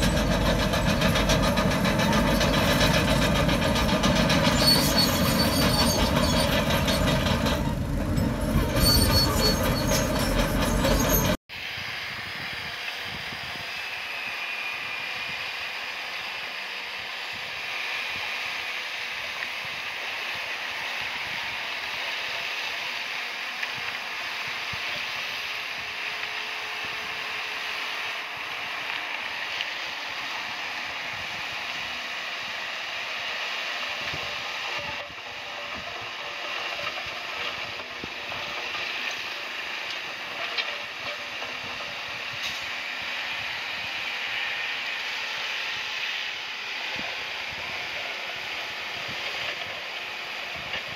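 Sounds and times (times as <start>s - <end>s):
bulldozer tracks clattering: 0.0s - 11.4s, 32.9s - 46.2s.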